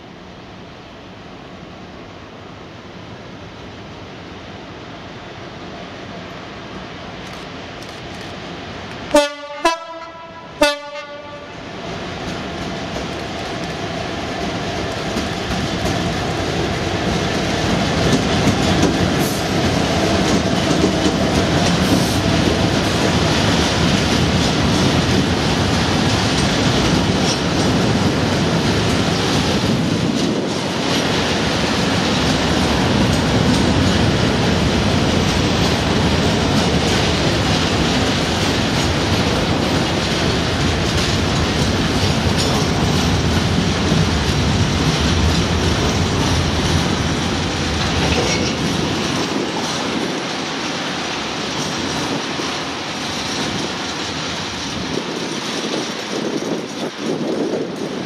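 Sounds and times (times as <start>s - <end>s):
freight train rumbling past: 0.0s - 58.0s
locomotive horn blasts: 9.1s - 11.5s
wheels clickety-clack: 12.2s - 58.0s.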